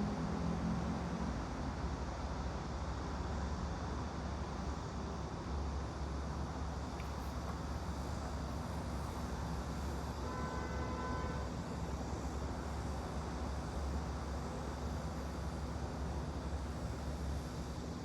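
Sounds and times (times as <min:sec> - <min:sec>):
white-noise ambience with low rumble: 0:00.0 - 0:18.0.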